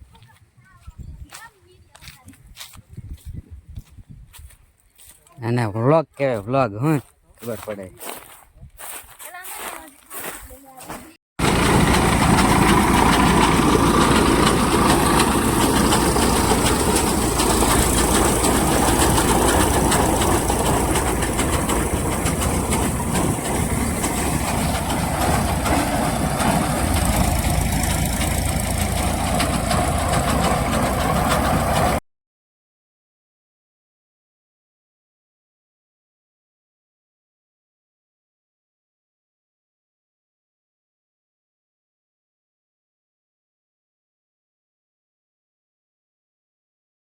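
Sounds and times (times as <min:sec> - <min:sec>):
tractor engine with clatter: 0:11.4 - 0:32.0.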